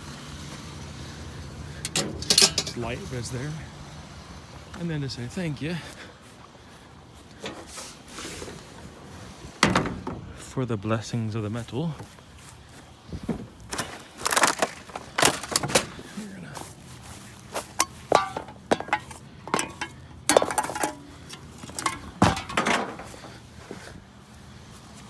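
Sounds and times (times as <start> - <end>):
scrap metal clanking: 1.7 - 3.6, 7.3 - 10.5, 13.7 - 16.2, 17.5 - 24.0.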